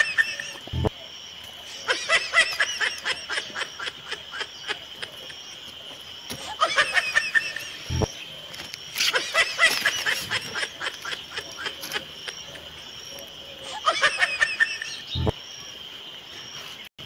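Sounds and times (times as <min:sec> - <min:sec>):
high-pitched giggling laughter: 0:00.0 - 0:00.8, 0:01.7 - 0:05.6, 0:06.4 - 0:08.0, 0:09.0 - 0:12.8, 0:13.6 - 0:15.3.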